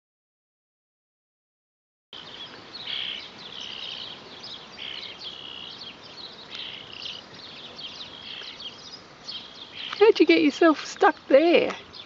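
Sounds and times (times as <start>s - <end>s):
fledgling chirping: 2.2s - 10.7s.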